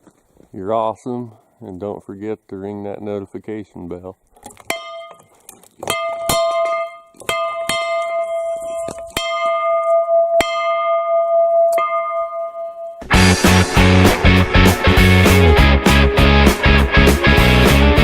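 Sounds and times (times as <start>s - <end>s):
bell ringing: 4.7s - 5.3s, 5.9s - 14.5s
rock music with guitar: 13.0s - 18.0s.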